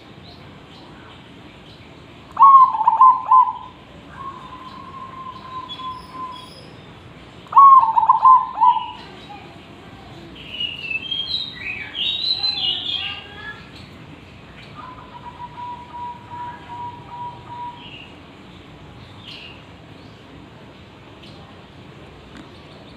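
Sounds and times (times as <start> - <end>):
small birds chirping: 0.0 - 22.9
dove cooing: 2.4 - 6.4, 7.5 - 9.2, 14.8 - 18.0.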